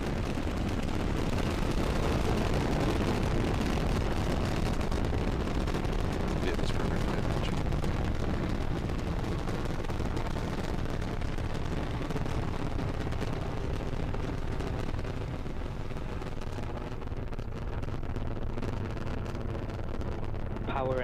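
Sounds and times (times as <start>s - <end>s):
rocket engines crackling rumble: 0.0s - 21.0s.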